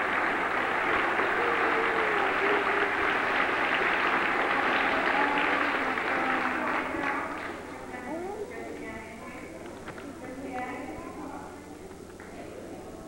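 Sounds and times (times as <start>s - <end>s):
audience applauding: 0.0s - 7.9s
faint voice: 1.0s - 13.0s.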